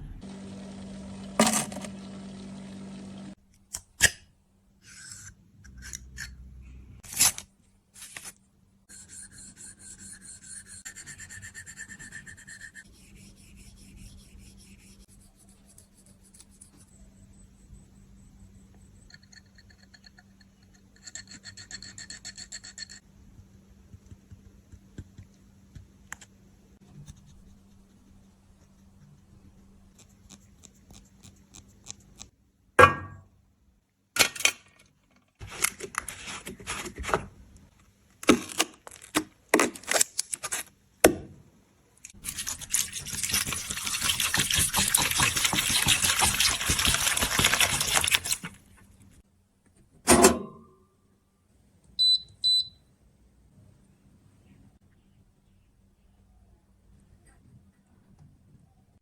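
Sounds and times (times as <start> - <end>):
short high beeps: 52.0 - 52.8.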